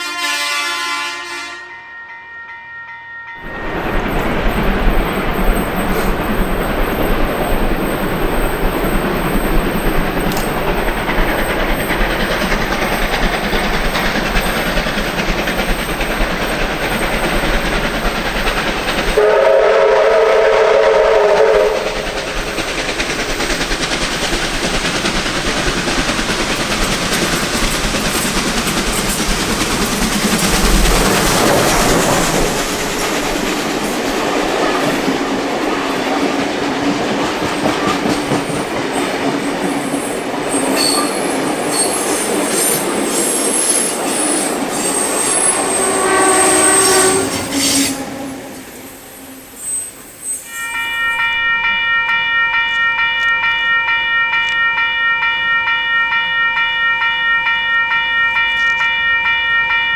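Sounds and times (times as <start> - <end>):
locomotive chime horn blast: 0.0 - 3.7, 19.2 - 22.1, 45.4 - 48.5, 50.4 - 59.9
train wheels clattering on rails: 3.4 - 48.1.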